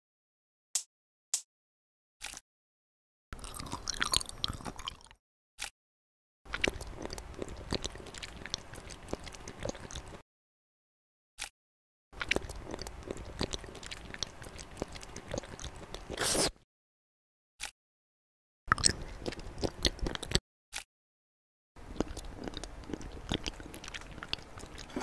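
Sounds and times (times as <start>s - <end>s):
wet chewing of pudding: 3.4s - 5.2s, 6.5s - 10.2s, 12.2s - 16.6s, 18.7s - 20.4s, 21.8s - 25.0s.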